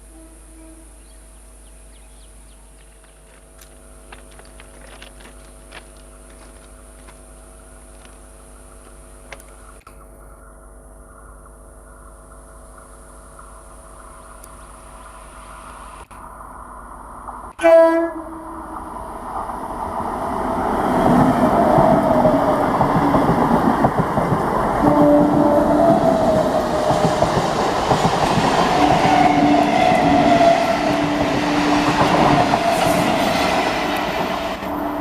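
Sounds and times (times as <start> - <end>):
train horn blast: 0.0 - 1.2, 17.5 - 18.9, 24.6 - 27.4, 28.4 - 35.0
electric train hum: 0.0 - 35.0
train wheel clatter: 19.4 - 35.0.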